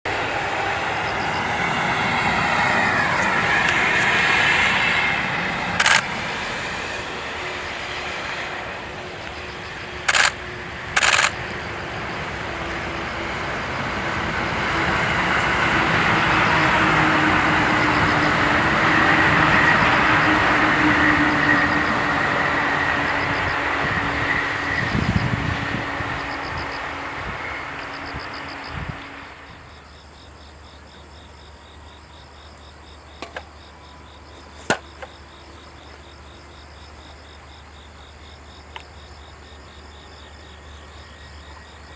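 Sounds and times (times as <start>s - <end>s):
train running noise with whine: 0.0s - 41.9s
short sharp bursts: 5.7s - 6.5s, 9.4s - 11.7s.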